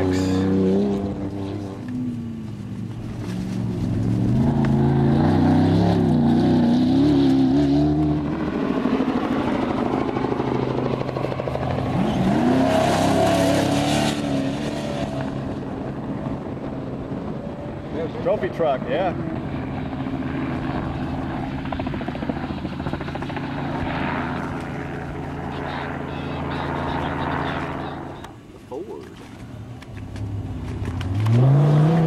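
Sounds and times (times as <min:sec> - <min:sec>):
race vehicle engine revving: 0:11.5 - 0:15.5, 0:30.1 - 0:32.0.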